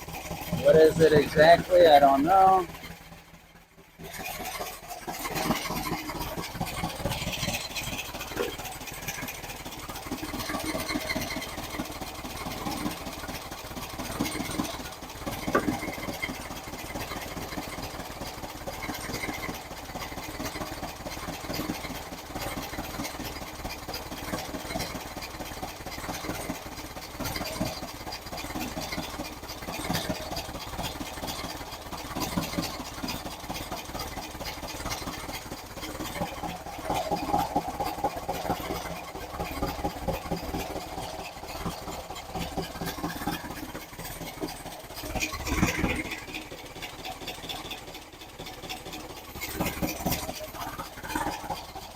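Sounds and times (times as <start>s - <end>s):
engine idling: 0.0s - 51.9s
sharp engine knock: 14.1s - 17.9s.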